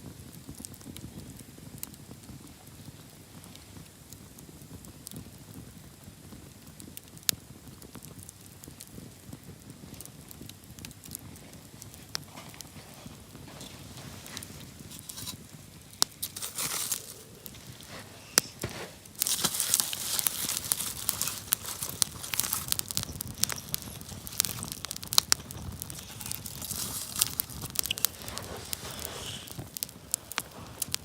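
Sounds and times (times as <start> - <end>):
campfire crackling and popping: 0.0 - 31.0
steady hiss: 8.3 - 31.0.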